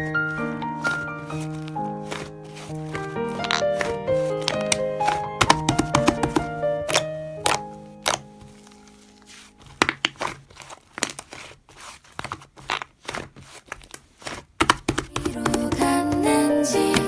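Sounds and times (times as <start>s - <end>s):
background music: 0.0s - 9.6s, 15.2s - 17.0s
slime crackling and popping: 0.8s - 15.7s.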